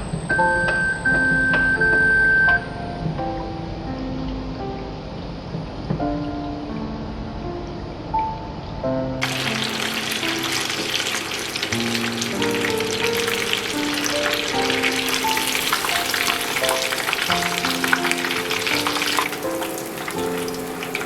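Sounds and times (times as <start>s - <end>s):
background music slow melody: 0.0s - 21.0s
food sizzling in hot oil: 9.2s - 21.0s.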